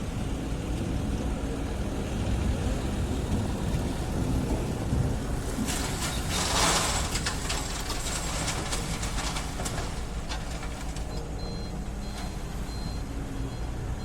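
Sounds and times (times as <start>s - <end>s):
excavator engine rumbling: 0.0s - 14.0s
faint high beeps: 11.1s - 14.0s.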